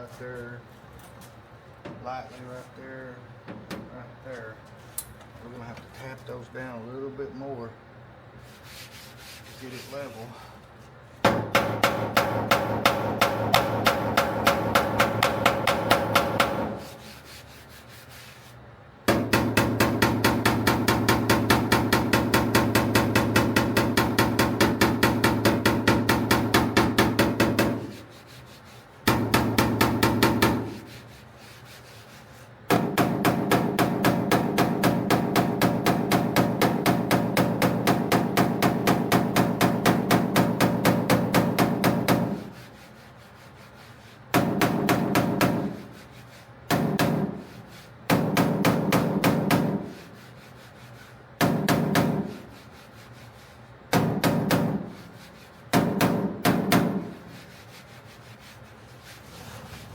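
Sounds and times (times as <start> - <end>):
hammer tapping metal panel: 11.3 - 16.8, 19.1 - 27.9, 29.1 - 30.8, 32.7 - 42.4, 44.4 - 45.8, 46.7 - 47.4, 48.1 - 50.0, 51.4 - 52.4, 53.9 - 54.9, 55.8 - 57.1.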